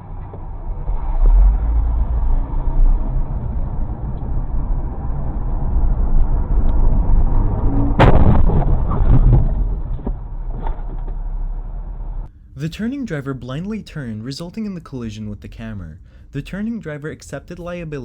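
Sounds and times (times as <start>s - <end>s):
clatter: 0.0s - 12.3s
loud car crash: 0.0s - 12.3s
road and engine noise: 0.0s - 12.5s.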